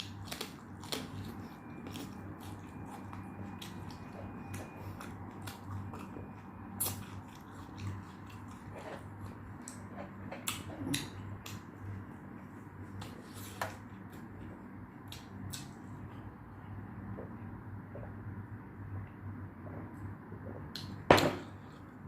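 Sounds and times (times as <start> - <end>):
person chewing crunchy food: 0.0 - 16.2.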